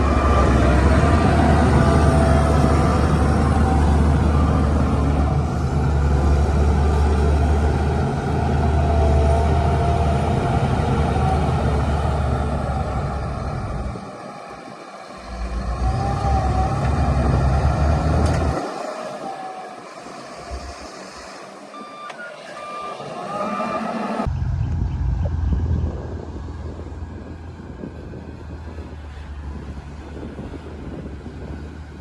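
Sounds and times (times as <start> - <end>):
bulldozer diesel engine running: 0.0 - 32.0
short beeps: 21.8 - 23.4.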